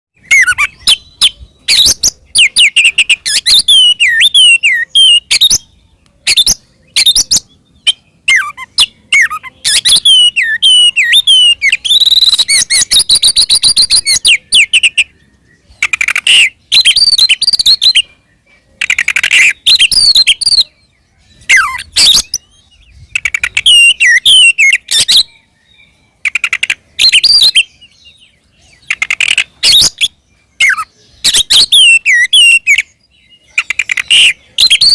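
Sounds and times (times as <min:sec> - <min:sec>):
bird singing whistles and clicks: 0:00.2 - 0:15.1, 0:15.8 - 0:18.1, 0:18.8 - 0:20.7, 0:21.4 - 0:25.4, 0:26.2 - 0:27.7, 0:28.8 - 0:34.9.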